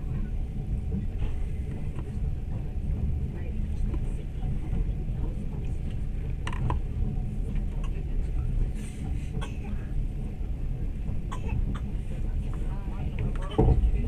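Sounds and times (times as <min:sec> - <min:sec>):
train rumble: 0:00.0 - 0:14.0.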